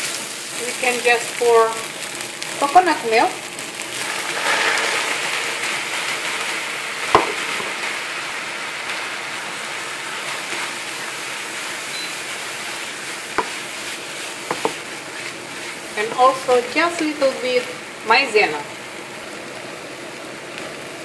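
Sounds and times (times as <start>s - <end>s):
food sizzling in a frying pan: 0.0s - 21.0s
utensil knocking against pan: 14.5s - 14.8s.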